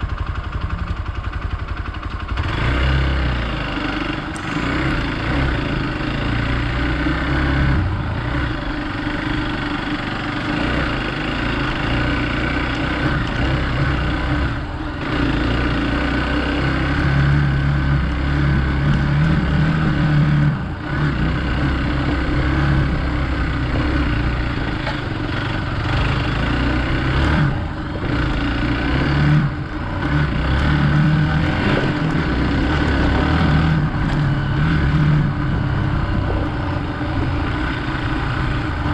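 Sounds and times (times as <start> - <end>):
motorcycle engine under load: 0.0 - 38.9.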